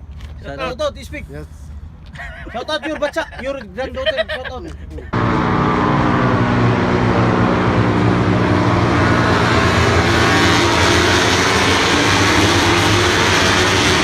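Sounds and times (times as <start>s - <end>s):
steady engine drone: 5.0s - 14.0s.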